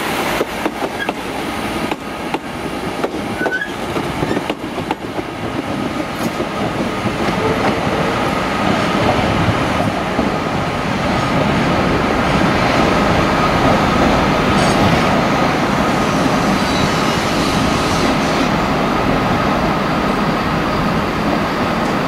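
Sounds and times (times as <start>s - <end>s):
train running noise: 0.0s - 22.0s
faint train whine: 11.6s - 22.0s.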